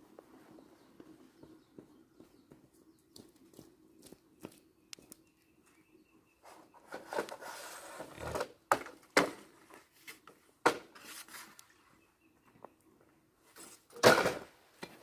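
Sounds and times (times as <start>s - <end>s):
wood rubbing and rustling: 6.4s - 11.9s.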